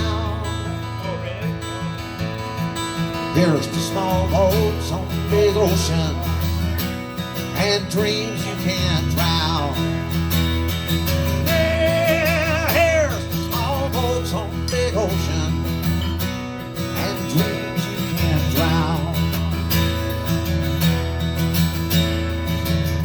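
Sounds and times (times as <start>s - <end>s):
acoustic guitar strumming: 0.0s - 23.0s
person singing: 11.3s - 15.6s.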